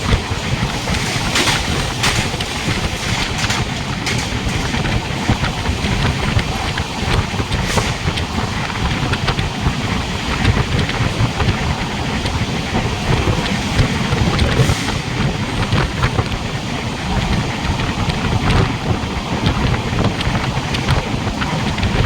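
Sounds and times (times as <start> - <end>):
faint clicks and rattles: 0.0 - 9.2
train rumbling along track: 0.0 - 22.0
wind rushing past microphone: 0.0 - 22.0.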